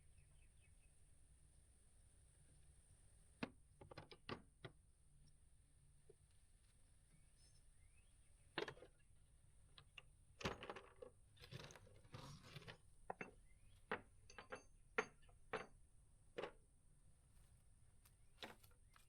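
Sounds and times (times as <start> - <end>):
small metal hardware clinking: 12.6 - 15.8.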